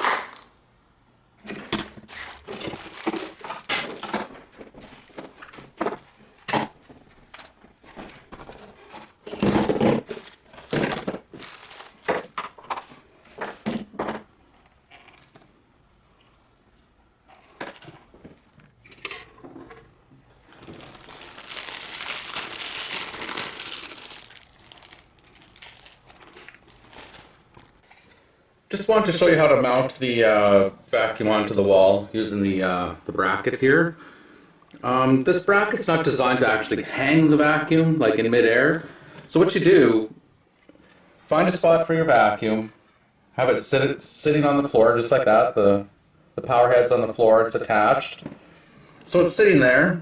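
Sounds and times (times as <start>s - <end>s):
packaging crinkling: 2.0s - 4.1s, 10.0s - 12.9s, 20.4s - 28.0s.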